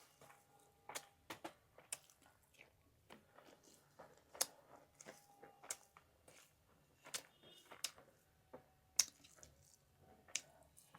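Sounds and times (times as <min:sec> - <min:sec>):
chewing with clicks and smacks: 0:00.0 - 0:08.2, 0:09.0 - 0:10.9.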